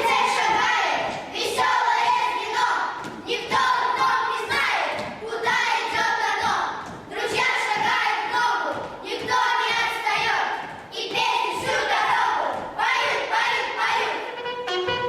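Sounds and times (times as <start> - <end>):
children singing together: 0.0 - 15.0.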